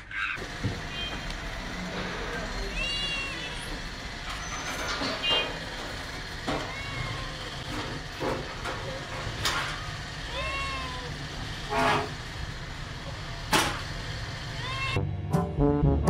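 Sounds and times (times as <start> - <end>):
cat meowing: 0.1 - 1.3, 2.5 - 3.8, 6.5 - 7.7, 10.3 - 11.3, 14.5 - 15.0.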